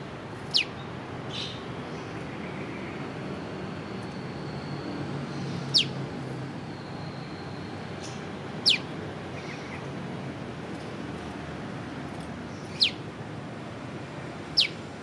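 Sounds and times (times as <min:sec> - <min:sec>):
bird whistling: 0:05.7 - 0:05.9, 0:08.6 - 0:08.9, 0:14.6 - 0:14.8.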